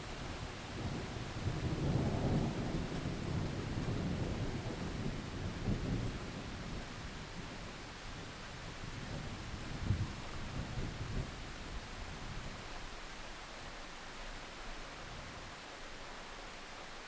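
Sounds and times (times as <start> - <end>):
steady rain hiss: 0.0 - 17.0
thunder rumbling: 0.7 - 7.7.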